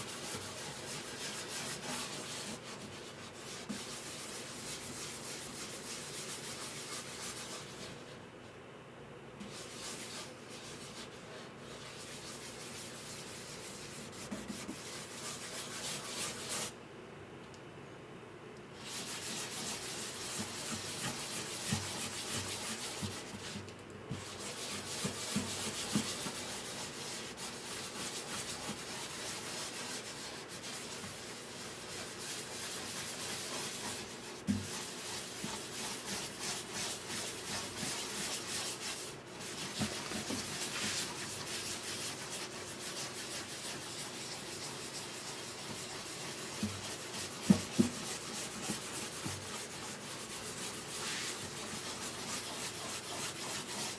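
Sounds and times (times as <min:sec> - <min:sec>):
sandpaper rubbing wood: 0:18.8 - 0:23.4, 0:24.2 - 0:53.9.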